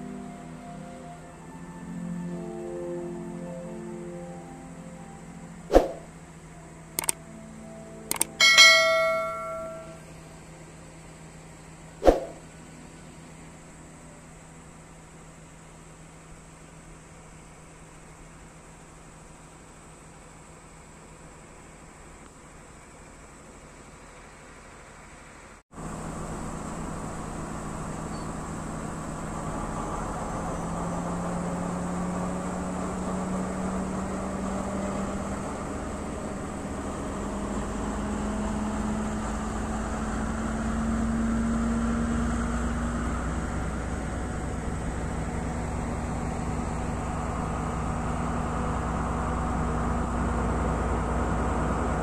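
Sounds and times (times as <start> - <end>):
diesel train rumble: 0.0 - 52.0.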